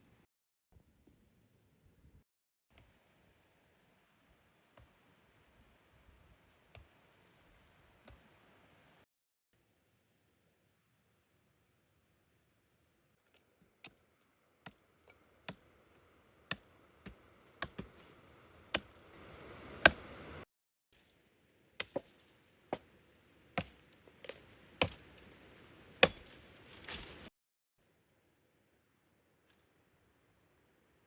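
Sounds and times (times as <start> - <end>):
wood being chopped: 16.5 - 18.1, 19.8 - 20.0, 21.8 - 22.2, 23.6 - 25.3, 26.0 - 27.2.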